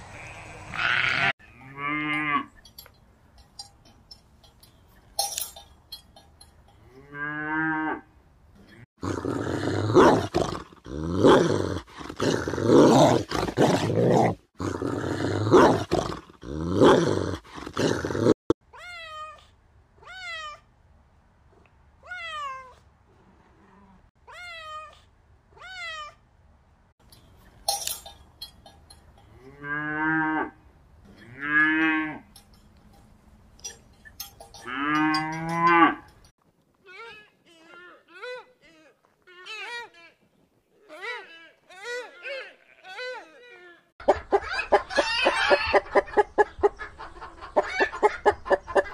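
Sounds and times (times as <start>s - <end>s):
cow mooing: 0.2s - 2.5s, 6.9s - 8.1s, 29.4s - 30.6s, 31.2s - 32.3s, 34.6s - 36.1s.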